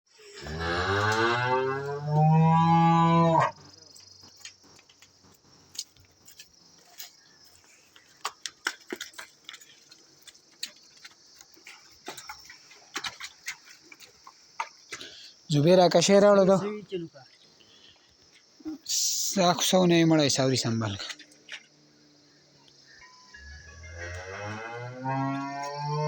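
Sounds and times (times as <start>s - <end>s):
cow mooing: 0.4s - 3.7s, 23.4s - 26.0s.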